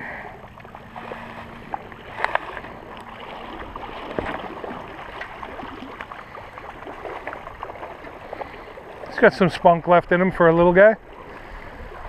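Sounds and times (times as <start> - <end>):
shallow stream running: 0.0 - 12.0
sharp water splashes: 0.6 - 9.8.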